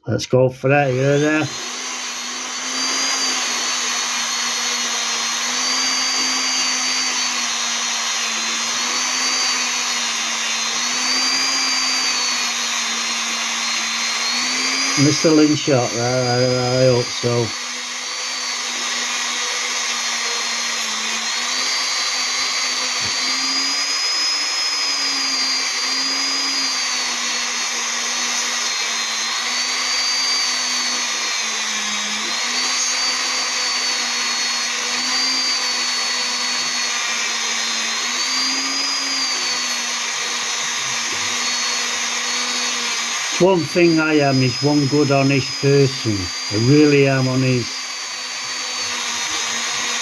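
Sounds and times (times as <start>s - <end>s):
electric rotary tool polishing stone: 0.8s - 50.0s.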